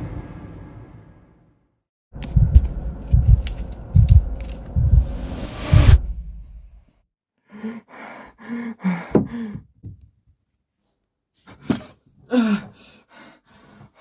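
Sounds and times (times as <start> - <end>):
person gasping and groaning: 7.6 - 9.7.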